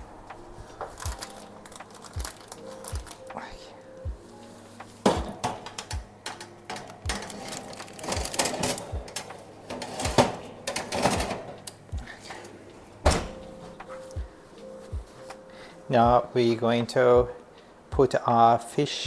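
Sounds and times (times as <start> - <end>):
utensils scraping: 4.4 - 15.4
kitchen utensils clattering: 4.8 - 14.2.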